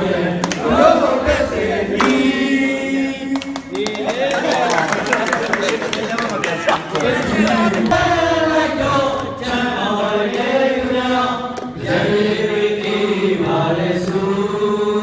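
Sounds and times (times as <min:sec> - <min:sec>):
voices chanting held notes: 0:06.4 - 0:15.0.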